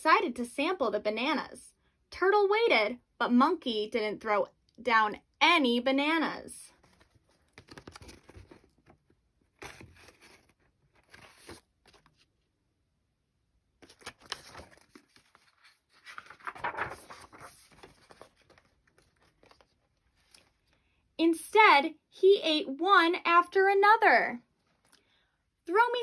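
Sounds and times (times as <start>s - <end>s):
rustling and crinkling handling: 6.7s - 12.4s, 13.8s - 20.8s.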